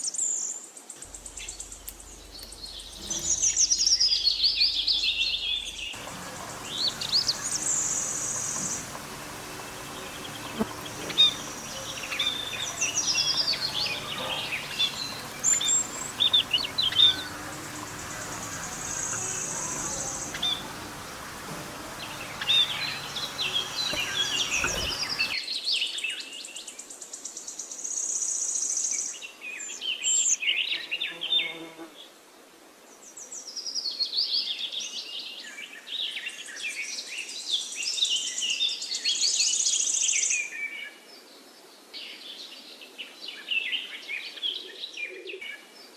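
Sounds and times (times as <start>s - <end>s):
low background hum: 1.1s - 25.4s
small birds chirping and trilling: 1.1s - 25.4s.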